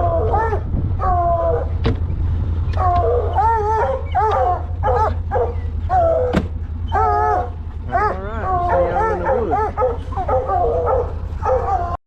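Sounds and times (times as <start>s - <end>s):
hounds bawling barks: 0.0s - 1.8s, 2.8s - 12.0s
steady low hum: 0.0s - 12.0s.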